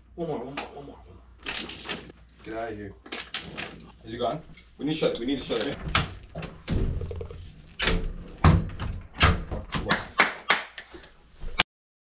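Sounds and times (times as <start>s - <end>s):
knocks and thuds: 5.8s - 9.9s.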